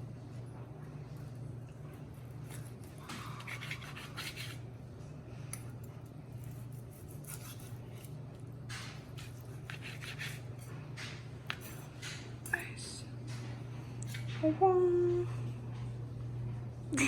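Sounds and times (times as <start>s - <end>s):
steady low hum: 0.0s - 17.0s
knife slicing meat on board: 2.5s - 4.6s, 6.4s - 8.2s, 8.8s - 10.7s.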